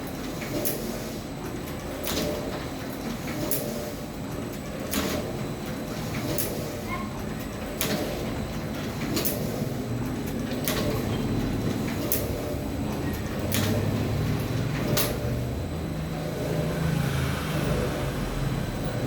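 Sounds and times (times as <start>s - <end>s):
stitching machine clacks: 1.5s - 15.6s.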